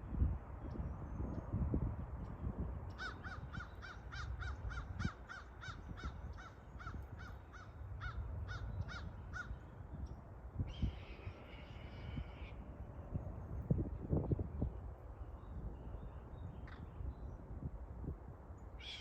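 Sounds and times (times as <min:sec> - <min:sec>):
large birds calling: 0:18.8 - 0:19.0.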